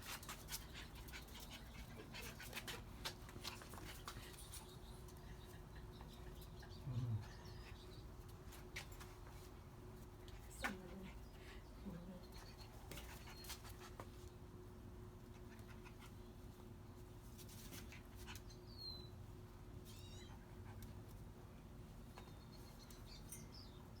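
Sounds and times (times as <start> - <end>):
puppies squeaking and whimpering: 19.8 - 20.5.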